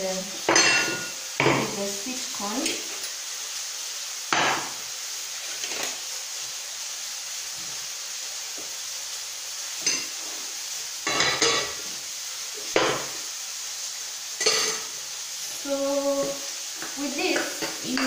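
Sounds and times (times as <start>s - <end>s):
chicken sizzling in a frying pan: 0.0s - 18.0s
kitchenware clattering: 0.4s - 1.8s, 5.5s - 6.0s, 9.8s - 10.2s, 11.0s - 11.9s, 12.7s - 13.1s, 14.4s - 14.9s, 17.3s - 18.0s.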